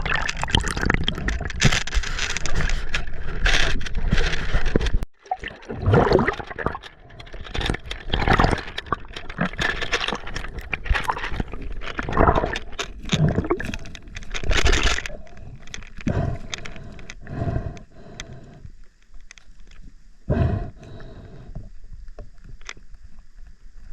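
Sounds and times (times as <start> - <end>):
water splashing and gurgling: 0.0 - 16.9.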